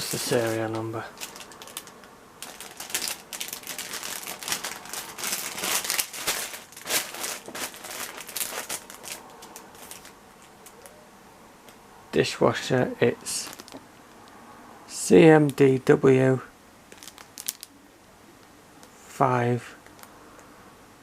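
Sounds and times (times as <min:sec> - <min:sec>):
packaging crinkling and clicking: 0:00.0 - 0:10.9, 0:13.4 - 0:13.8, 0:16.9 - 0:17.7.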